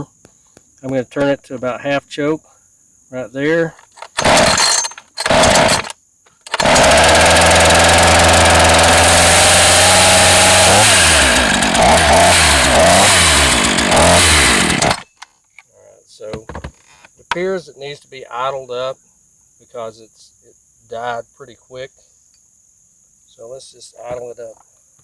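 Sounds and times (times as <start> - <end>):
chainsaw starter pulls: 3.7 - 15.2
chainsaw engine running: 4.0 - 15.1.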